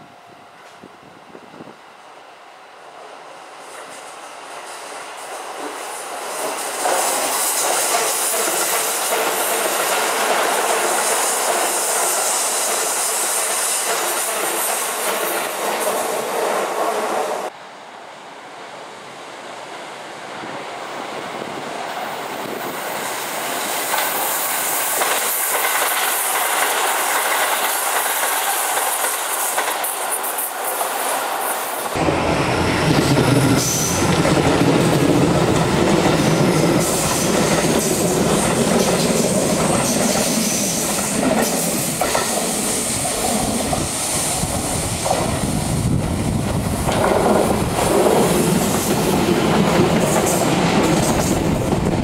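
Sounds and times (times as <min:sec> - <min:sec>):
train wheels clattering: 0:04.7 - 0:16.6, 0:23.7 - 0:32.0, 0:32.8 - 0:45.4, 0:46.7 - 0:52.0
train wheels squealing: 0:04.8 - 0:16.2, 0:33.1 - 0:34.2, 0:36.1 - 0:45.5.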